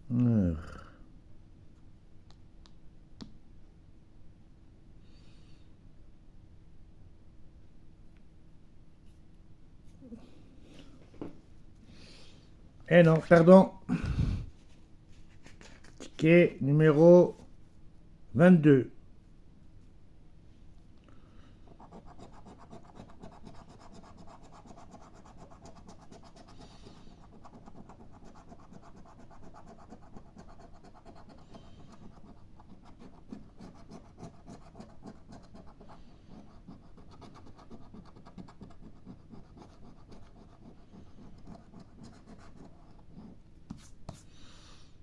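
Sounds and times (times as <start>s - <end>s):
scratch card being scratched: 21.8s - 26.6s, 27.2s - 44.3s.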